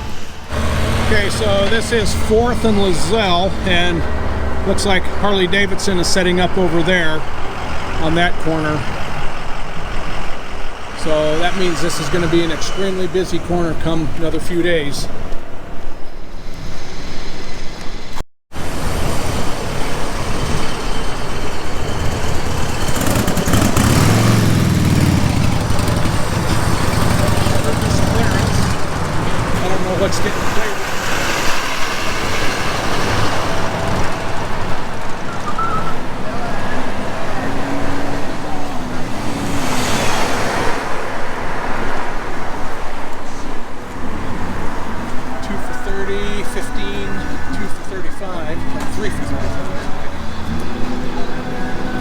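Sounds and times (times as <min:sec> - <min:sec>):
vehicle engine passing by: 0:00.0 - 0:15.2, 0:18.6 - 0:47.6
street and wind noise: 0:00.0 - 0:52.0.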